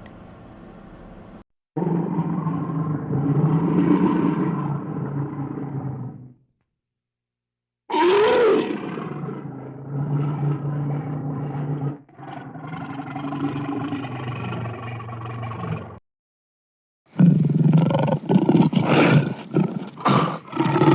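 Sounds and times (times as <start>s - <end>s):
large animal roaring: 1.8s - 6.4s, 7.9s - 16.0s, 17.2s - 20.9s
rough growling: 1.8s - 6.4s, 7.9s - 16.0s, 17.2s - 20.9s.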